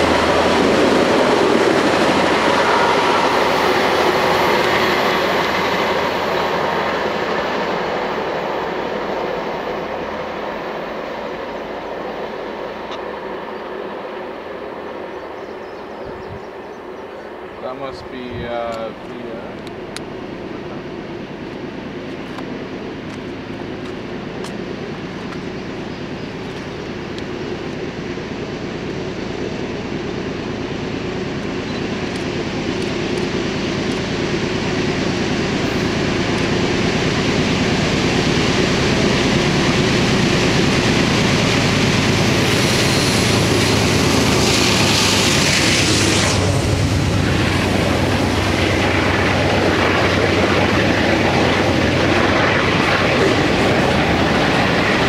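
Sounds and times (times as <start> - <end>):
diesel locomotive engine hum: 0.0 - 55.0.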